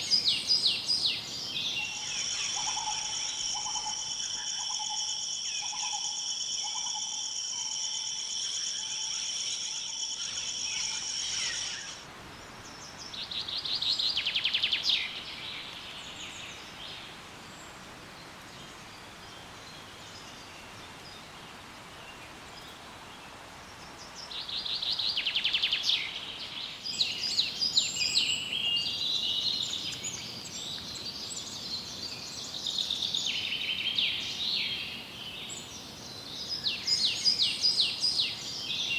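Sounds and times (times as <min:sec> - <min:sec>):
birds calling: 0:00.0 - 0:16.8
pulsing insect trill: 0:01.8 - 0:12.0.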